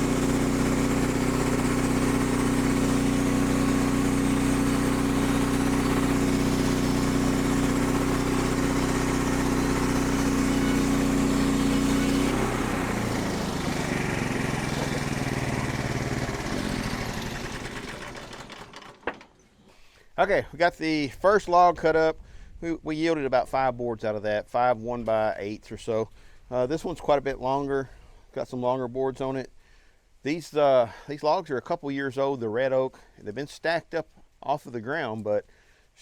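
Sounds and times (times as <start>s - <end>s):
small petrol engine running: 0.0s - 19.3s.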